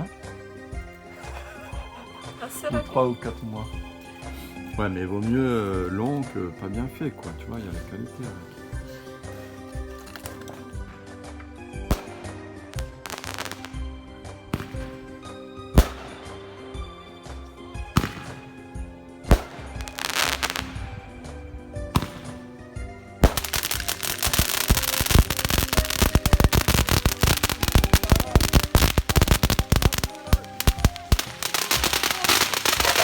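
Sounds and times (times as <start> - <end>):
fireworks bangs: 11.8 - 33.0
rapid string of firework cracks: 11.9 - 13.8, 14.5 - 16.8, 17.9 - 18.6, 19.2 - 21.0, 22.0 - 22.5, 23.2 - 33.0.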